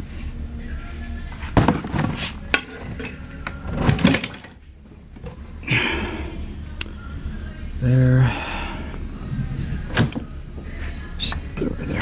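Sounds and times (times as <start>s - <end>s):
hard parts clicking and knocking: 1.6s - 5.4s.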